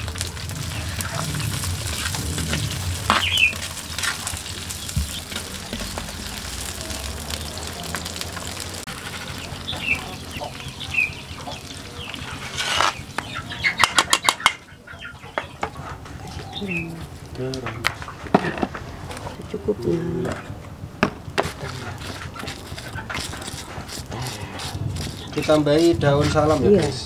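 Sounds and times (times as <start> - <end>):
food sizzling in a wok: 0.0 - 13.2
metal skimmer scraping wok: 12.1 - 13.2.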